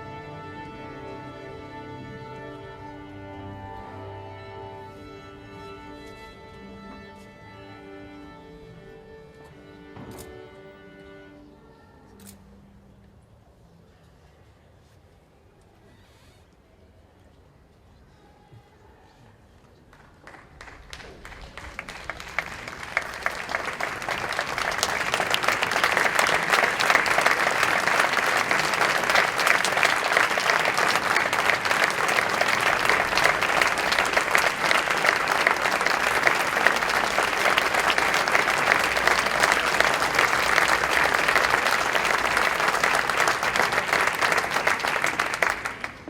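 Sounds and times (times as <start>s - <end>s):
audience applause: 0.0s - 0.8s, 19.9s - 46.0s.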